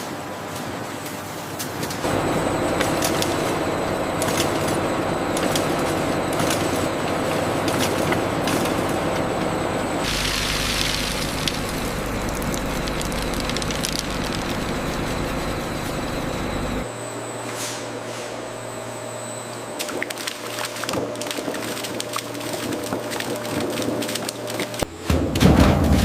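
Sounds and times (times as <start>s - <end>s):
machinery humming: 1.9s - 25.2s
sharp cracks and clicks: 10.9s - 15.3s.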